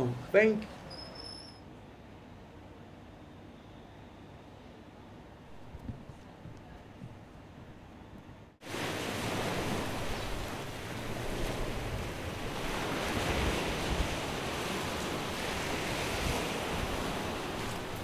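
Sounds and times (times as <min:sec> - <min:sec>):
wind: 0:00.0 - 0:18.0
wind gusting on microphone: 0:05.5 - 0:18.0
sea surf: 0:08.6 - 0:18.0.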